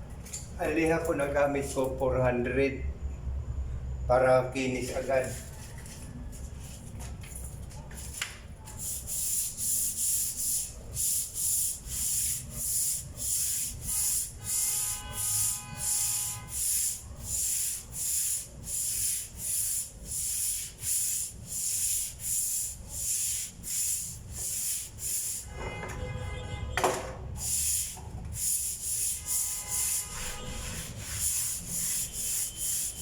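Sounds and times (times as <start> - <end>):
sandpaper rubbing back and forth: 8.8 - 25.5, 27.4 - 33.0.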